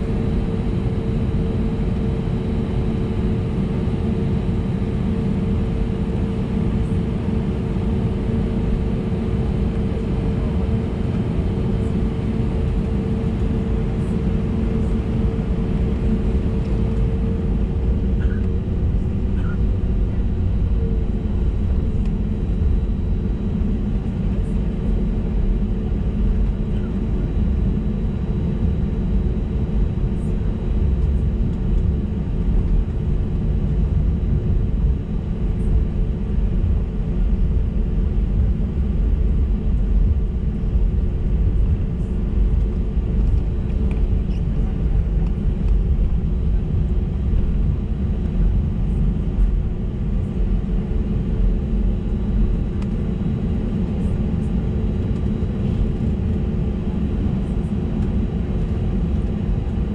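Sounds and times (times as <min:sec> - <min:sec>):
aircraft cabin rumble: 0:00.0 - 0:59.9.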